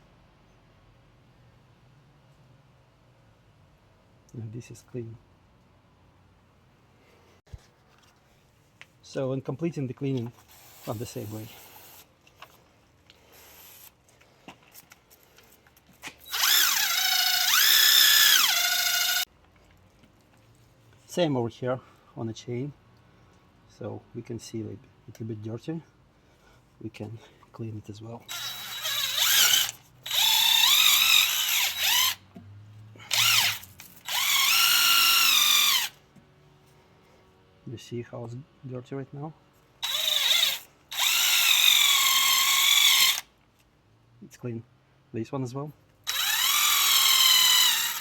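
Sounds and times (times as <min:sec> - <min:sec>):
faint clicks and rubs: 0:07.5 - 0:09.0
electric drill motor whine: 0:16.2 - 0:19.3, 0:28.3 - 0:32.2, 0:33.0 - 0:36.0, 0:39.8 - 0:43.2, 0:46.1 - 0:48.0.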